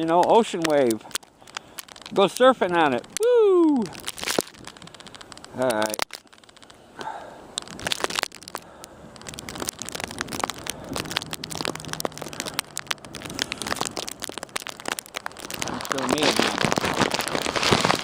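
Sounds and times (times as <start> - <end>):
footsteps crunching in snow: 15.6 - 18.0.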